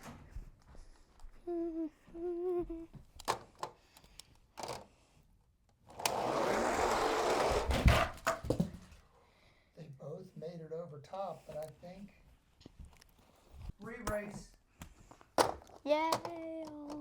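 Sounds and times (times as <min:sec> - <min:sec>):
person humming: 0:01.4 - 0:03.0
toy trucks rattling down plastic track: 0:05.9 - 0:08.2.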